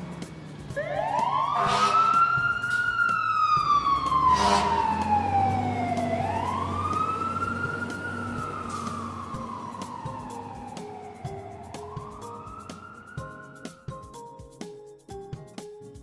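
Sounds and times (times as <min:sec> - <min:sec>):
fire engine siren wailing: 0:00.7 - 0:13.7.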